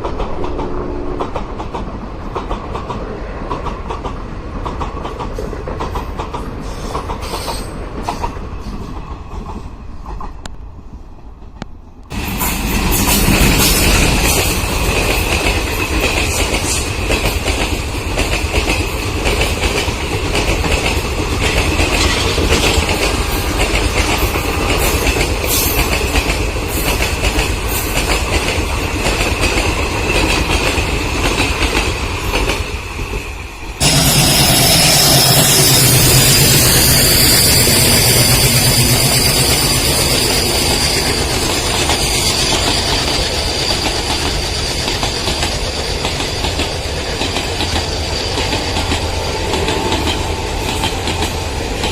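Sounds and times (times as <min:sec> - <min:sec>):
train high whine: 0:00.0 - 0:02.4, 0:05.3 - 0:51.9
train wheels clickety-clack: 0:00.0 - 0:51.9
high ring from rails: 0:33.8 - 0:46.0.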